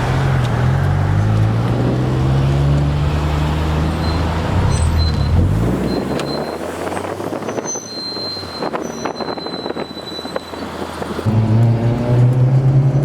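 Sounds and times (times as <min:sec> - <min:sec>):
car engine droning at low revs: 0:11.2 - 0:13.0.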